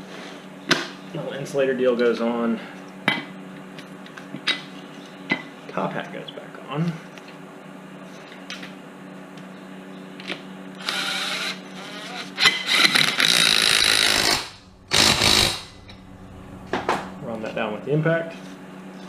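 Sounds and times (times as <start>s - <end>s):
impact wrench bursts: 10.8s - 16.0s.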